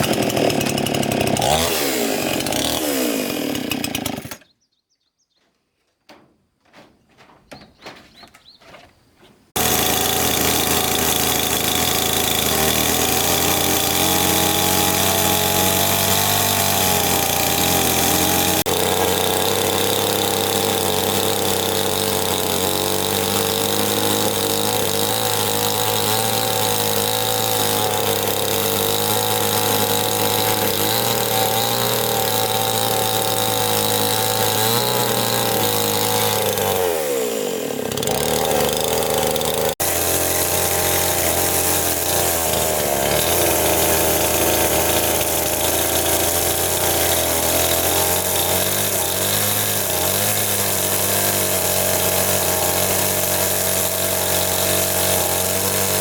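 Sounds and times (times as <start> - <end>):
small engine running: 9.6 - 56.0.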